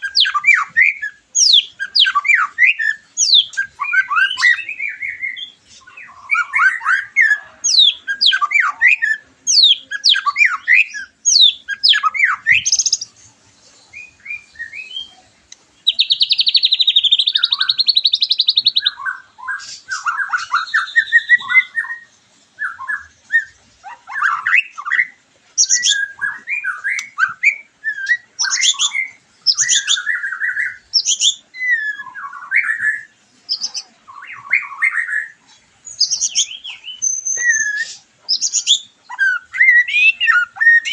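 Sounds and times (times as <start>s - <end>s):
bird singing whistled phrases: 0.0s - 13.1s, 13.9s - 15.2s, 15.8s - 40.9s
rapid buzzy bird trill: 6.2s - 15.1s.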